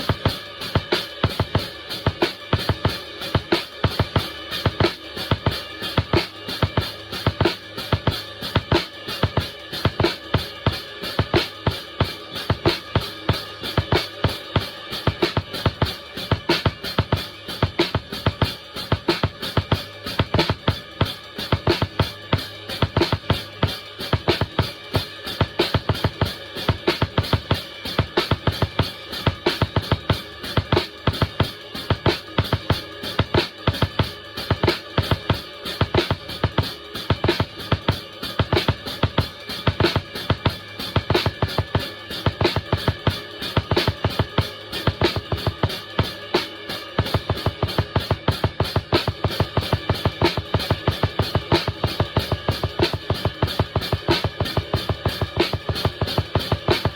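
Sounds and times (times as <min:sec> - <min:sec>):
cymbals washing: 0:00.0 - 0:56.9
snare drum hits: 0:13.7 - 0:20.8, 0:33.2 - 0:56.9.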